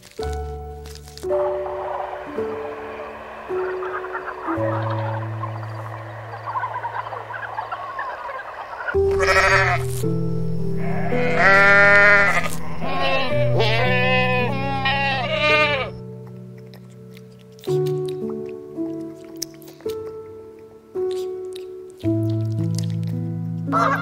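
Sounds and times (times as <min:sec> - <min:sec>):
soft piano music: 0:00.0 - 0:24.0
goats bleating: 0:09.0 - 0:10.0, 0:10.8 - 0:16.0.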